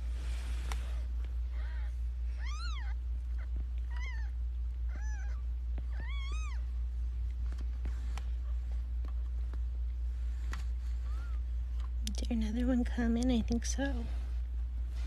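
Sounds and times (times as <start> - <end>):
steady low hum: 0.0 - 15.0
kitten mewing: 1.5 - 6.7.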